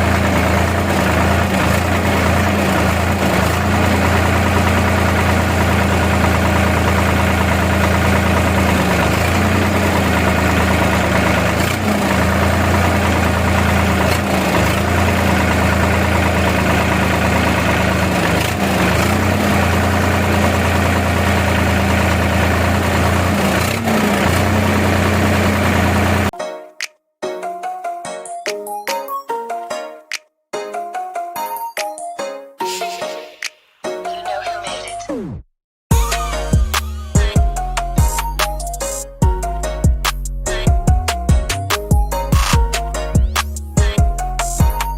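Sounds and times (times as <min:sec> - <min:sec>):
tractor diesel engine running: 0:00.0 - 0:26.3, 0:35.9 - 0:44.9.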